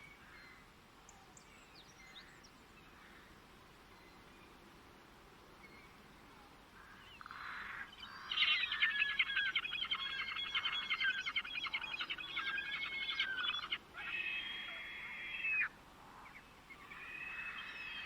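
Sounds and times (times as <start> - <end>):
bird chirping: 7.0 - 13.8.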